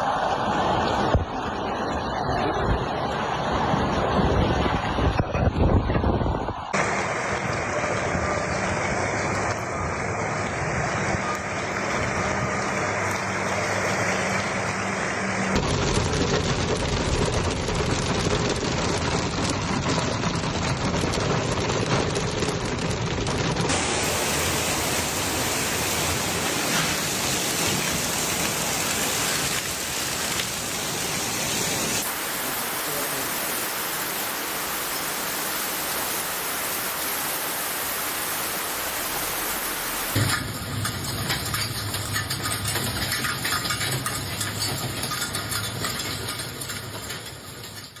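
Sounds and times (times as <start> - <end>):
heavy rain pouring: 0.0 - 5.2, 6.8 - 48.0.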